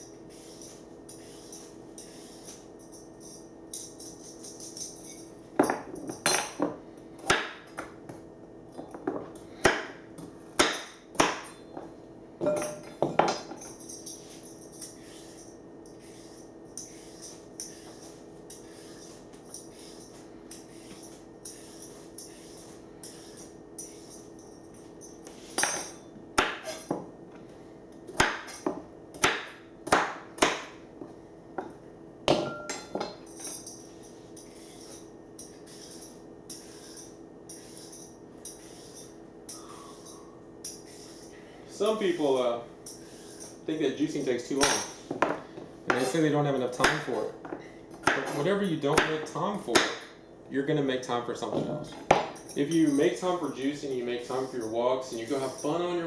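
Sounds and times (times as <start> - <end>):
knife chopping on cutting board: 5.6 - 8.0, 9.1 - 10.0, 10.6 - 11.6, 25.3 - 27.1, 28.1 - 30.8, 46.8 - 50.1, 52.0 - 52.4.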